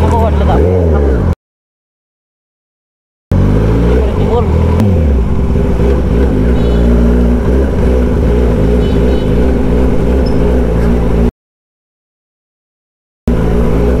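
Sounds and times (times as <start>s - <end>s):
motorcycle engine revving: 0.0s - 1.4s, 3.3s - 11.3s, 13.3s - 14.0s.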